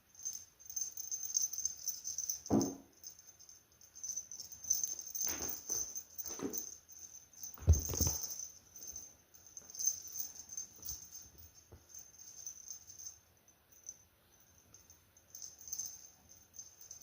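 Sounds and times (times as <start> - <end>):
cat paws thumping and pattering: 7.5 - 8.4.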